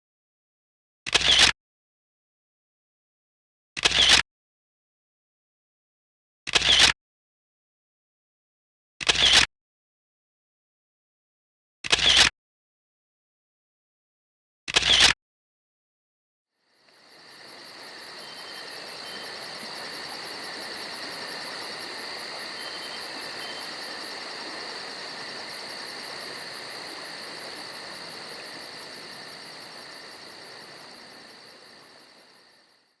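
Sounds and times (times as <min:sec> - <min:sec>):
crickets chirping: 0:16.6 - 0:33.0.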